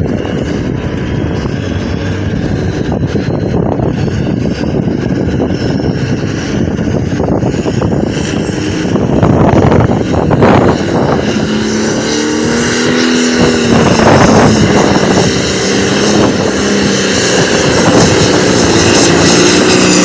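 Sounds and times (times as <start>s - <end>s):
tractor engine running at high revs: 0.0s - 20.0s.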